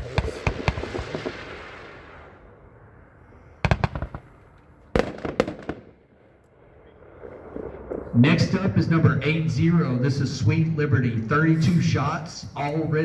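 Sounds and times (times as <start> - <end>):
loud firework bangs: 0.0 - 2.4, 3.6 - 8.5
firework cracks: 0.0 - 2.6, 3.6 - 6.5
crackling hiss: 0.0 - 9.0.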